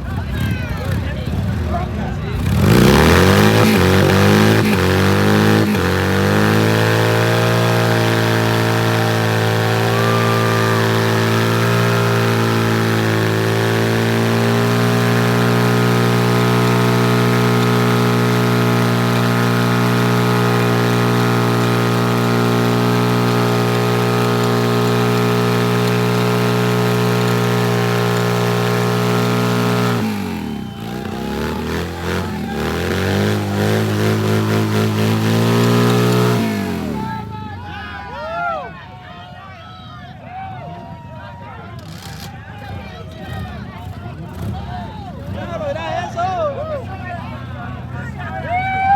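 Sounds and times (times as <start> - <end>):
motorcycle engine revving: 0.0 - 37.5.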